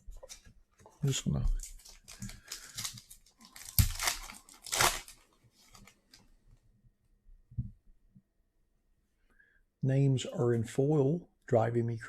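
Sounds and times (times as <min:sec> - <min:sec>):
wrapper ripping: 0:01.6 - 0:06.0
wrapper crinkling: 0:01.6 - 0:06.2.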